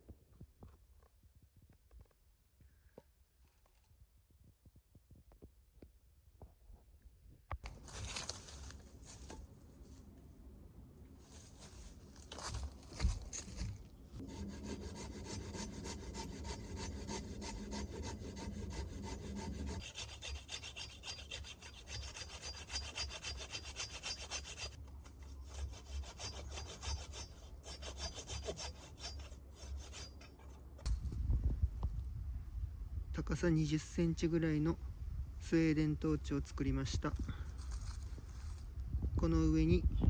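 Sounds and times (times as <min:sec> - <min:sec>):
saw cutting wooden log: 0:14.2 - 0:24.8, 0:25.4 - 0:30.6.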